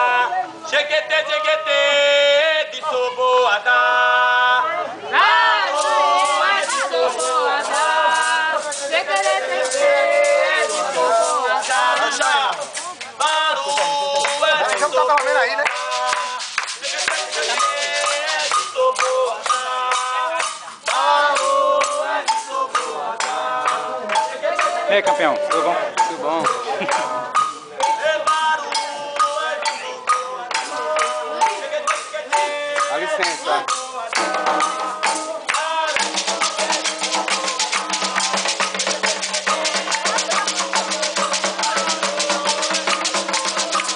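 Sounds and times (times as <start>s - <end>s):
voices singing a chant: 0.0s - 43.9s
hand rattle shaken: 5.7s - 43.9s
drums: 30.0s - 43.9s.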